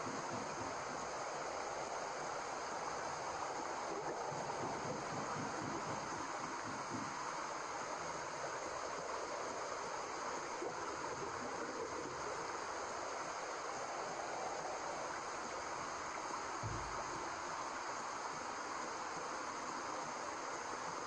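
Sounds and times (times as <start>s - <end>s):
white noise hiss: 0.0s - 21.0s
low thump: 16.6s - 17.2s.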